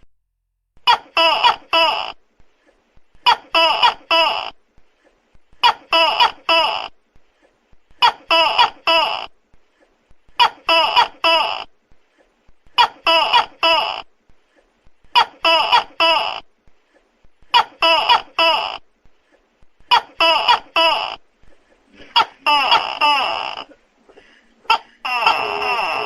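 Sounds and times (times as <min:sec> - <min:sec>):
gecko calling: 0:24.6 - 0:26.0.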